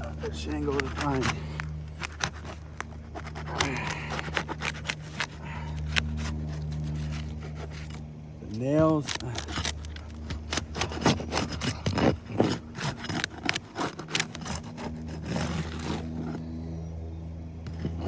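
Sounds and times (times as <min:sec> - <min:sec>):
roof shingle crackling and scraping: 0:00.0 - 0:16.6, 0:17.6 - 0:18.0
steady low hum: 0:00.0 - 0:18.0.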